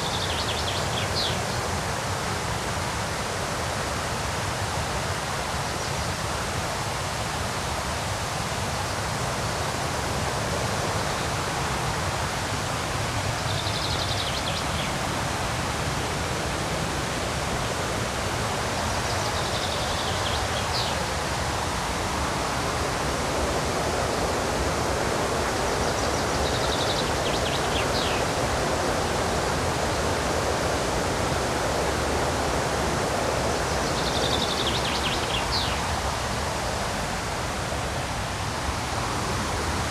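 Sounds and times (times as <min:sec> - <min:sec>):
songbird singing: 0:00.0 - 0:01.7, 0:12.7 - 0:15.1, 0:18.5 - 0:21.1, 0:25.4 - 0:29.2, 0:33.4 - 0:36.1
river rapids rushing: 0:00.0 - 0:39.9.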